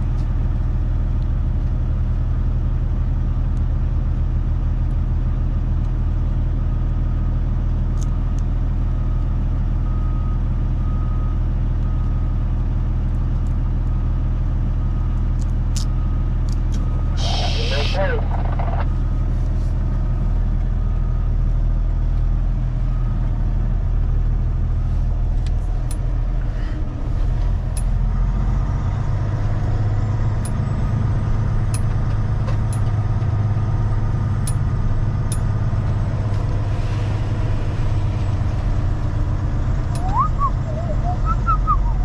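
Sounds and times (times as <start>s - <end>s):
truck engine running: 0.0s - 42.0s
short squeaky chirps: 40.0s - 42.0s.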